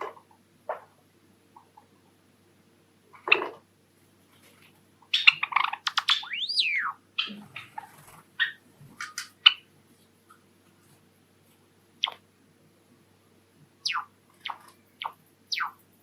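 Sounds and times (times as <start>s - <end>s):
sparrow singing clicks and chirps: 5.1s - 7.8s, 13.8s - 15.8s
whistled bird note: 6.1s - 7.0s.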